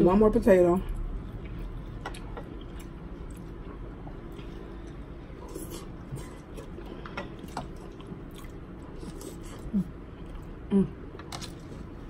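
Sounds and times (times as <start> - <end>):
person chewing wetly: 1.0 - 10.6.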